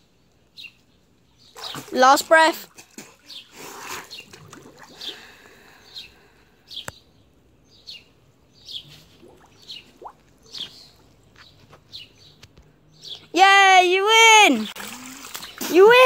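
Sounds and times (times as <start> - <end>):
small bird chirping: 5.8 - 13.3.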